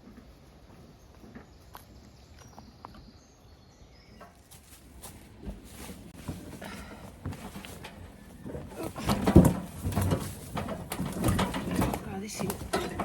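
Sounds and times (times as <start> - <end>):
wheelbarrow rattling over rough track: 5.0 - 13.0
tools clattering: 8.8 - 13.0.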